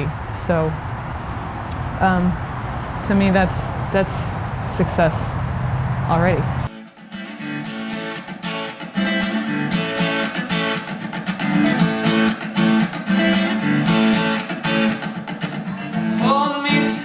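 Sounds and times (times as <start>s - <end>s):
acoustic guitar strumming: 6.7s - 17.0s.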